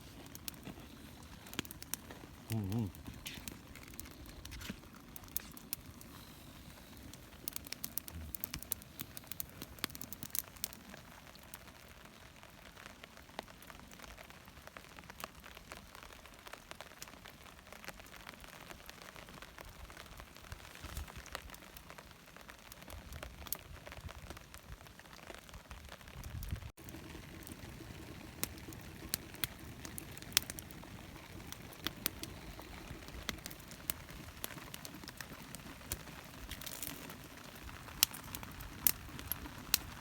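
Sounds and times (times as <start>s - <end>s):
sharp clicks and crackles: 0.0s - 11.4s, 26.4s - 40.0s
rain pattering: 0.0s - 40.0s.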